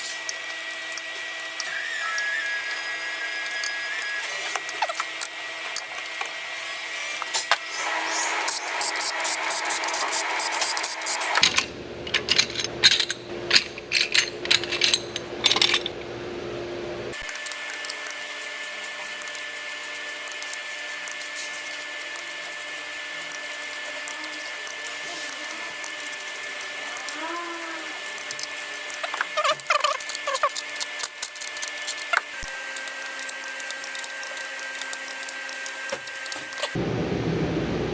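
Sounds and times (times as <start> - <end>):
fast light engine ticking: 17.2 - 29.2.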